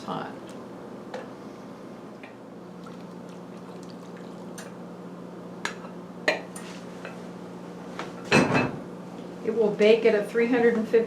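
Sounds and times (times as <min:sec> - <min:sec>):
water pouring into a dish: 0:02.8 - 0:04.6.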